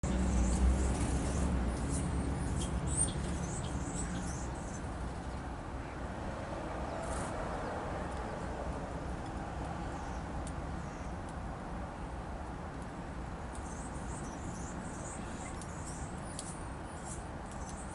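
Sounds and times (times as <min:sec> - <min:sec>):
small songbirds chirping: 0:00.0 - 0:06.0, 0:09.8 - 0:11.3, 0:13.5 - 0:17.9.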